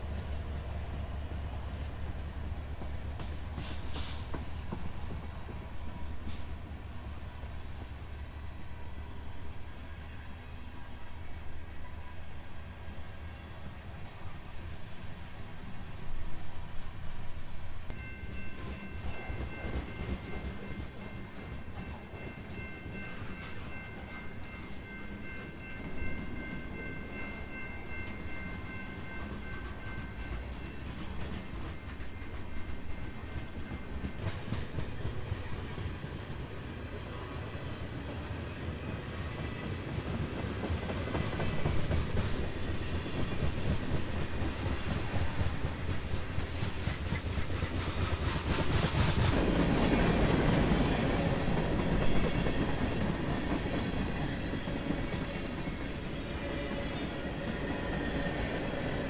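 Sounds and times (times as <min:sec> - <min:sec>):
freight train wheels rattling: 0:18.0 - 0:36.7.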